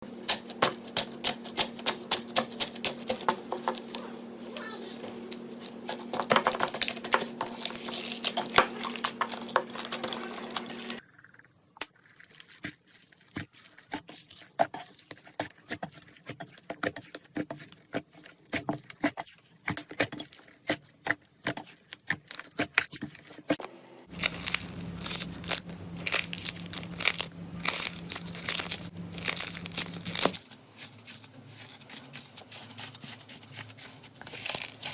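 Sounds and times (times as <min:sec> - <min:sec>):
steady low hum: 0:00.0 - 0:11.0, 0:23.6 - 0:32.4.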